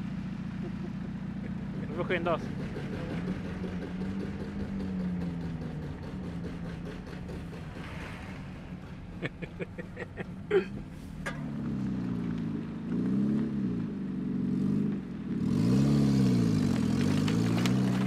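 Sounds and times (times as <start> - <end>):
car engine running: 0.0 - 18.0
road rumble: 0.0 - 18.0.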